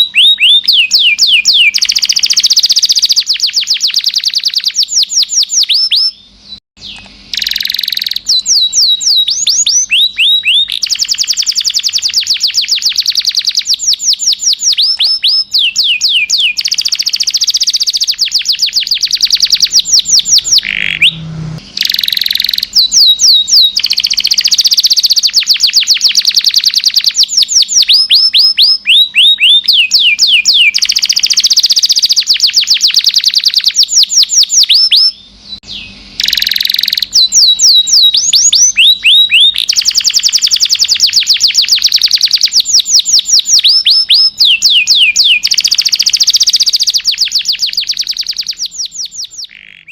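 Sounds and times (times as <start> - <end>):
canary singing trills: 0.0 - 49.9.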